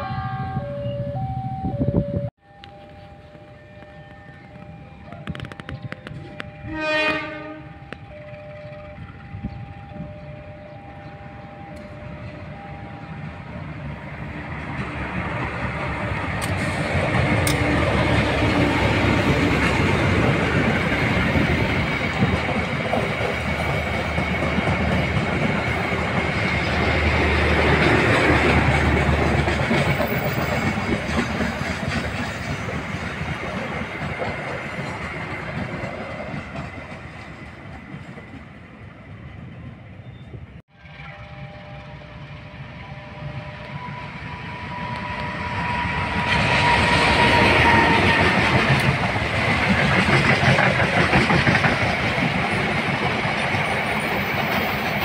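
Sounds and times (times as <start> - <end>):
diesel locomotive approaching: 0.0 - 55.0
train wheels clattering on rails: 14.6 - 38.7, 44.9 - 55.0.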